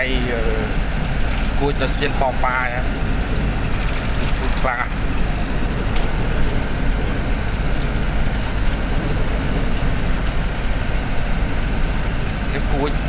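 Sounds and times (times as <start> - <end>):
road noise: 0.0 - 13.0
truck engine rumble: 0.0 - 13.0.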